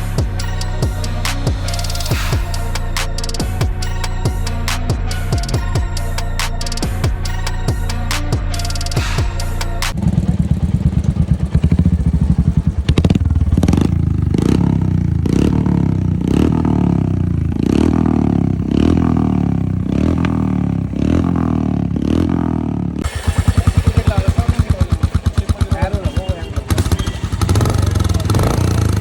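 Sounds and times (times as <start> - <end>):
motorcycle engine idling: 6.8 - 29.0
motorcycle throttle blips: 9.9 - 29.0.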